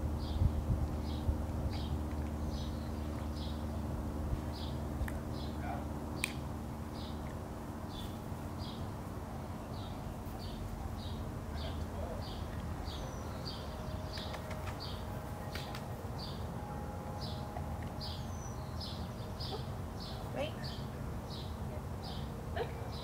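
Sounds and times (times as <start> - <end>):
steady low hum: 0.0 - 23.0
bird chirping: 7.9 - 23.0.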